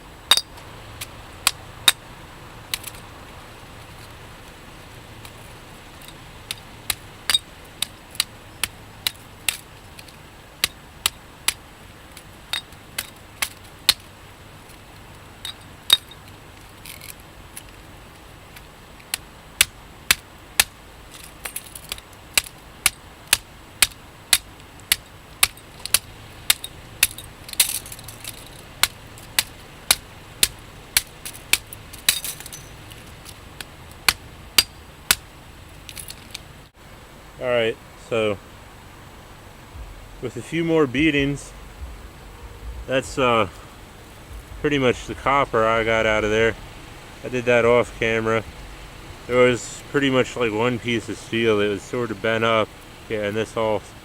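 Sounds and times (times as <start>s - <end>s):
hatchet striking metal: 0.3s - 0.6s, 1.4s - 2.0s, 6.0s - 11.6s, 19.1s - 35.3s.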